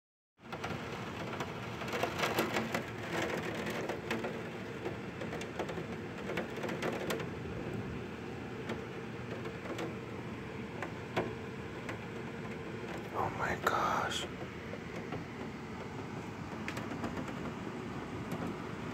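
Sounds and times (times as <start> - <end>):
heavy rain falling: 0.6 - 13.7.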